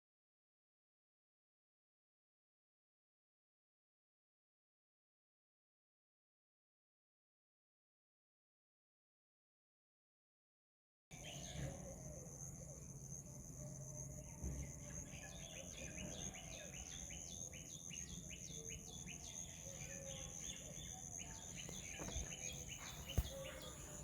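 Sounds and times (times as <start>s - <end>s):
high insect drone: 11.2s - 24.0s.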